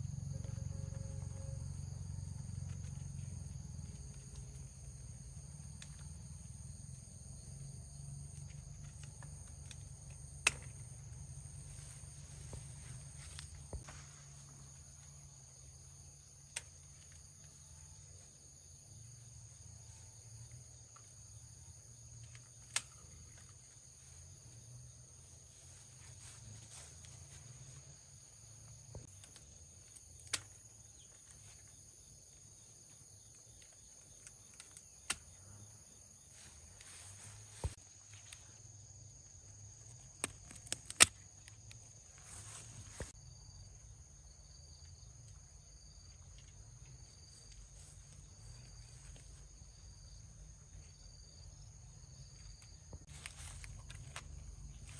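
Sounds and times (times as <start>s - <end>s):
insects chorus ringing: 0.0s - 54.9s
sharp clicks or snaps: 40.2s - 41.7s.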